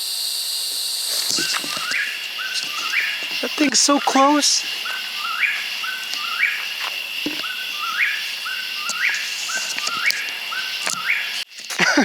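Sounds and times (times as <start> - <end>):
high insect drone: 0.0 - 12.0
animal whistled call: 1.3 - 6.7, 7.4 - 11.4.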